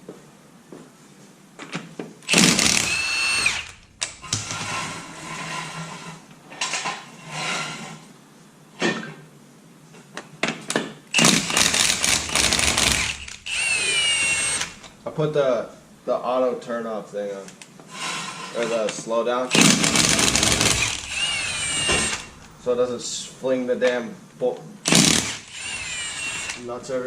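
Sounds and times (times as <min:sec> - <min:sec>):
impact wrench whirring: 0:02.3 - 0:05.0, 0:11.1 - 0:15.1, 0:19.5 - 0:22.9, 0:24.8 - 0:26.8.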